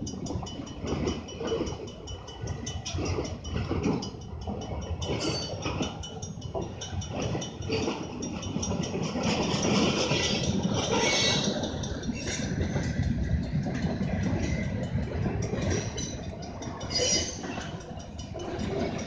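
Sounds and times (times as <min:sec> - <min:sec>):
wheels clattering over rails: 0:00.0 - 0:19.0
wheel screech: 0:09.8 - 0:12.5, 0:16.8 - 0:17.6.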